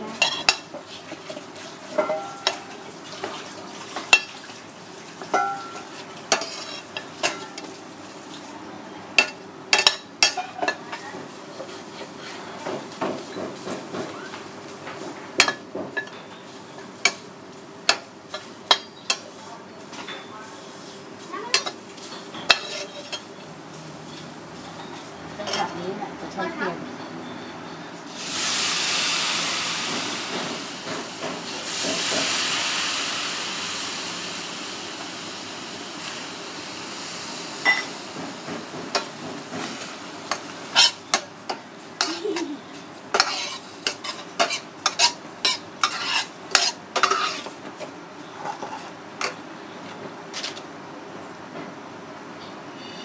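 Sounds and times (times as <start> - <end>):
food sizzling in a pot: 0.0 - 25.6, 28.1 - 47.6
metal spoon scraping a pot: 6.3 - 6.8, 22.5 - 23.2, 43.1 - 47.5.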